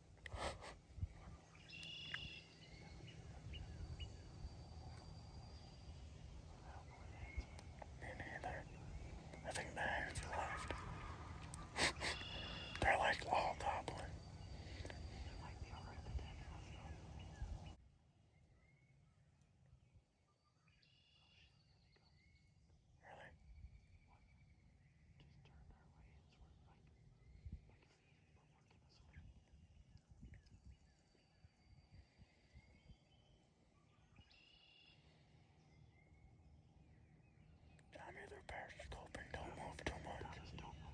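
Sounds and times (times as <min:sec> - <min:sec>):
songbird calls: 0:00.4 - 0:17.8, 0:30.1 - 0:40.9
low rumble of wind: 0:00.8 - 0:17.8, 0:28.9 - 0:33.4
short whistled bird calls: 0:01.6 - 0:04.2, 0:11.6 - 0:12.8.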